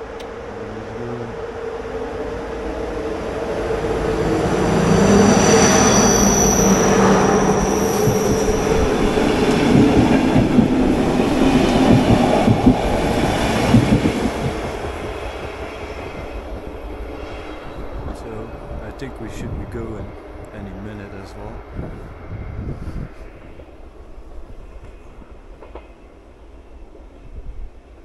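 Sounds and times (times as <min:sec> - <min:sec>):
passing train rumble: 0:00.0 - 0:28.0
high wheel squeal: 0:04.0 - 0:10.6.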